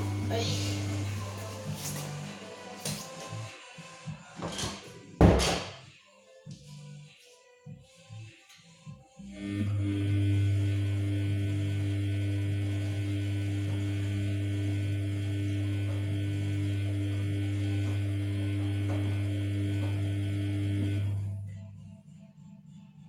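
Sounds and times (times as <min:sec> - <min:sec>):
washing machine pump humming: 0:00.0 - 0:02.4, 0:09.3 - 0:21.5.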